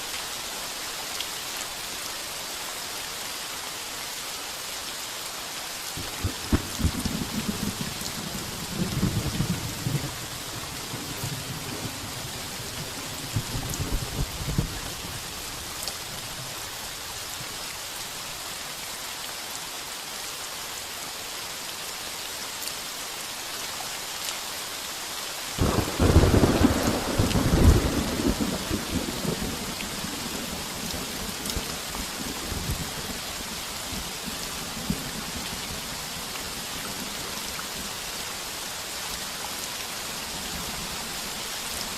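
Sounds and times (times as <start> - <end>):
heavy rain on a tin roof: 0.0 - 41.9
thunder rumbling: 6.0 - 15.0, 25.6 - 31.2.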